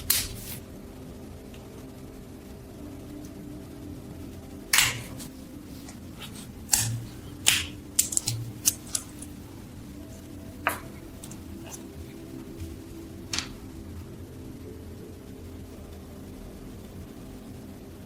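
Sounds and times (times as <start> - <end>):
steady low hum: 0.0 - 18.0
small metal parts clicking: 6.7 - 9.3.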